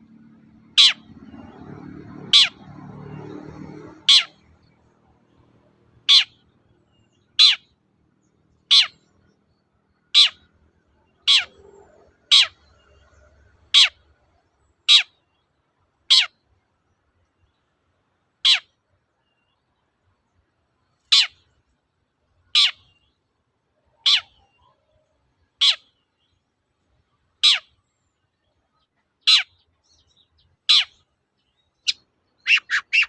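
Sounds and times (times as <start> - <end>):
shrike sharp calls: 31.8 - 33.0.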